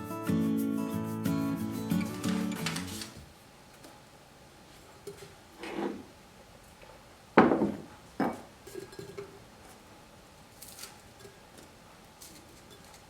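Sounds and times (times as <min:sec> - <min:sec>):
dishes and glassware clinking: 0:07.4 - 0:09.4
dishes clunking: 0:07.4 - 0:09.4.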